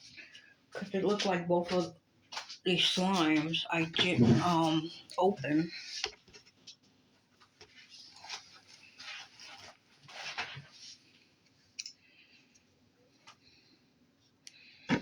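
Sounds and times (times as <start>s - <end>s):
plastic packaging rustling: 7.7s - 11.2s.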